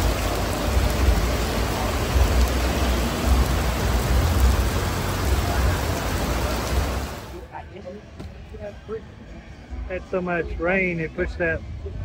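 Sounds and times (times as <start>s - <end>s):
heavy rain on pavement: 0.0s - 7.5s.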